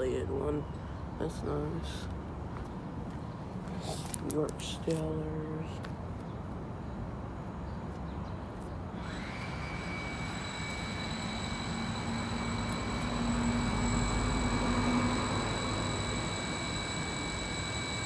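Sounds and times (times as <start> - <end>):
vehicle rumble: 0.0 - 16.4
high whine gliding up: 9.0 - 18.0.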